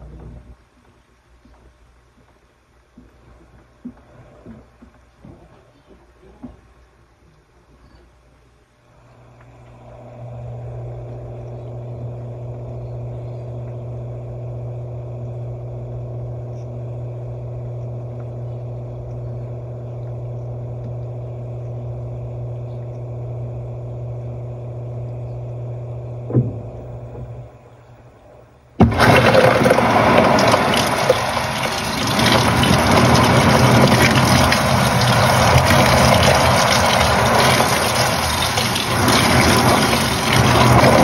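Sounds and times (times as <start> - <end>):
washing machine motor hum: 9.0 - 41.0.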